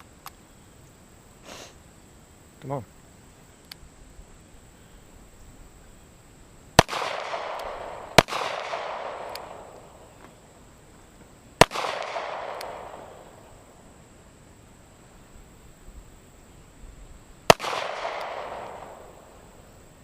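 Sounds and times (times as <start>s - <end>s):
handgun shots with echo: 6.8s - 10.0s, 11.6s - 13.2s, 17.5s - 19.2s.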